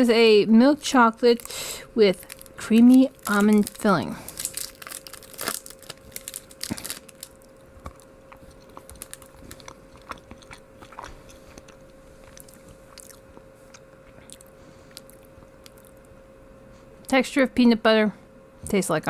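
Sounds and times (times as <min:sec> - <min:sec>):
chewing chocolate: 0:02.1 - 0:16.1.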